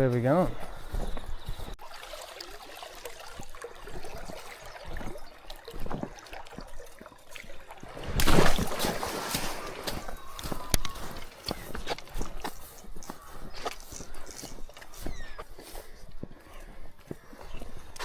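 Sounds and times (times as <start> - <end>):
water trickling and gurgling: 0.8 - 15.1
water rushing burst: 1.8 - 7.0.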